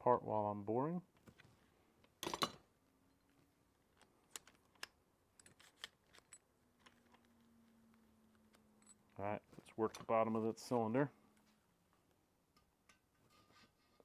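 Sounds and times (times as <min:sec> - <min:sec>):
metal tools clicking: 0:02.2 - 0:02.6.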